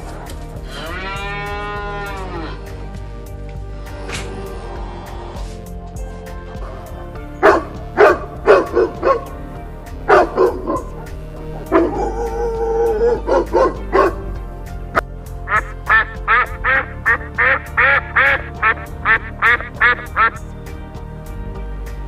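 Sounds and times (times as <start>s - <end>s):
background music: 0.0s - 22.0s
dog barking: 7.4s - 9.3s, 10.1s - 14.3s
dog yelping: 7.4s - 9.3s, 10.1s - 14.2s.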